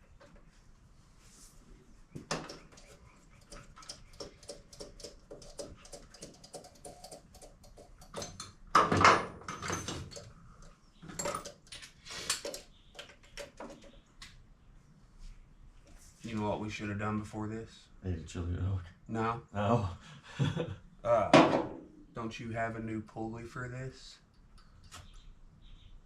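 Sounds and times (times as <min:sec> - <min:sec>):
tools clattering on metal: 0:08.0 - 0:10.3, 0:11.0 - 0:12.6.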